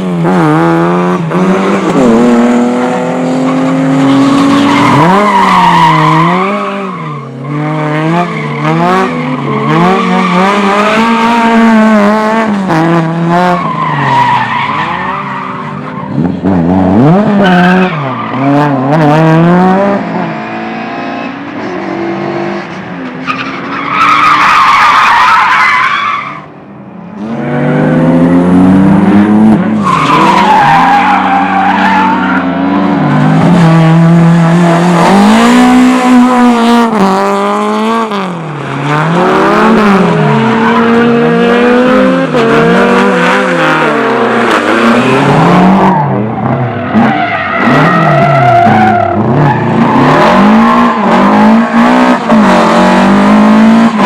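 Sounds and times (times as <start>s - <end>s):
car engine revving: 27.1s - 54.0s.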